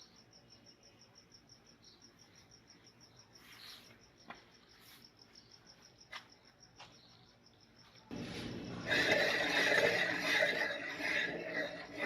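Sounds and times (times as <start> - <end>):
cricket chirping: 0.0 - 12.0
rough grinding noise: 8.1 - 12.0.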